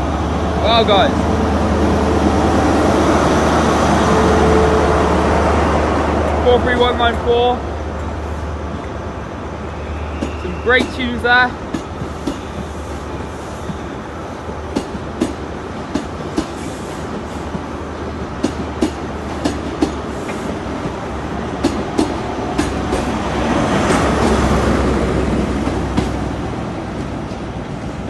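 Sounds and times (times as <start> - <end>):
diesel train engine drone: 0.0 - 28.0
wheels clicking over rail joints: 21.6 - 24.4.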